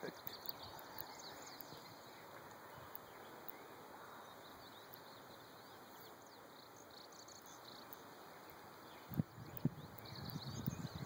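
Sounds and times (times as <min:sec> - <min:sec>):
distant birds chirping: 0:00.0 - 0:11.0.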